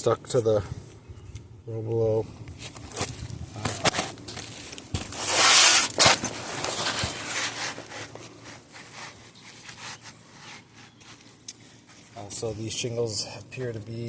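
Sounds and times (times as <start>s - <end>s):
shingles scraping: 2.6s - 12.2s.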